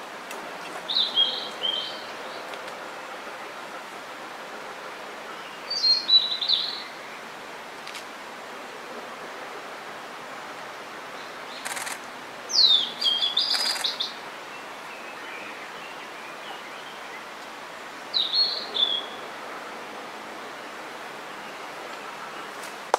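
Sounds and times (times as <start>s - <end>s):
steady background hiss: 0.0s - 22.9s
bird whistled song: 12.5s - 14.1s.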